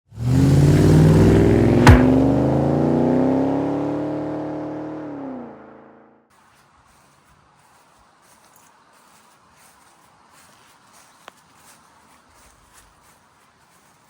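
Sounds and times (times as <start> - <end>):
car engine revving: 0.1 - 6.1
sharp hit: 1.7 - 2.6.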